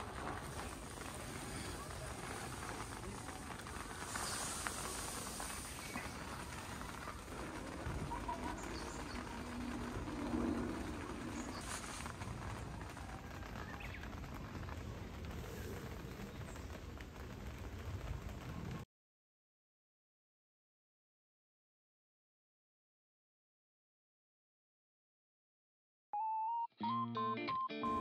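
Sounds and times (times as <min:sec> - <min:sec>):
low drone: 0:00.0 - 0:13.0
rain pattering: 0:00.0 - 0:18.9.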